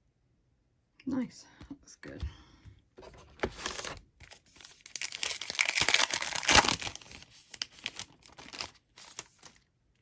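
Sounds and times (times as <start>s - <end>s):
foil wrapper crinkling and tearing: 3.6s - 9.7s.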